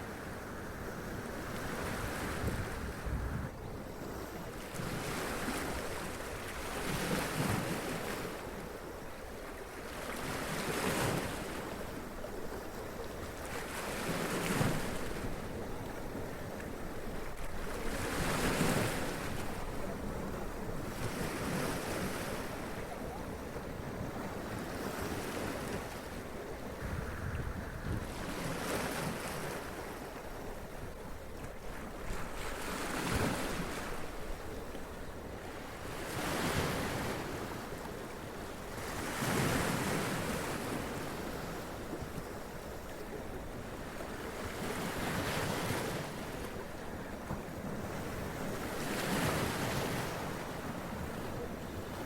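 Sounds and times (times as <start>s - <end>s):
wind on microphone: 0.1s - 3.6s, 26.4s - 29.8s.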